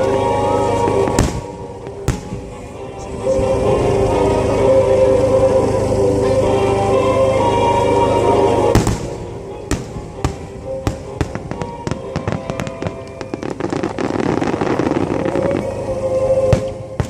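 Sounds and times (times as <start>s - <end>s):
music over loudspeakers: 0.0s - 17.0s
fireworks bangs and crackling pops: 1.0s - 2.6s, 8.8s - 15.8s.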